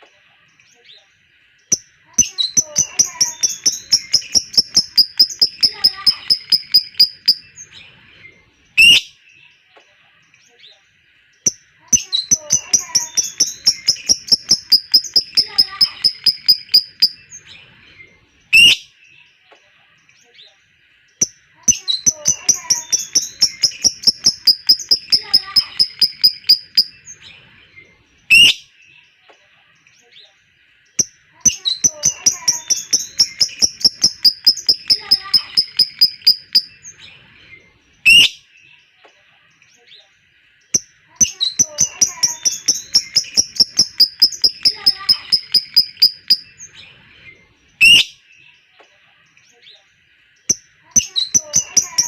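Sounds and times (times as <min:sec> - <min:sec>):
lovebird rapid high chirps: 0:01.7 - 0:07.7, 0:11.5 - 0:17.4, 0:21.2 - 0:27.2, 0:31.0 - 0:36.9, 0:40.7 - 0:46.7, 0:50.5 - 0:52.0.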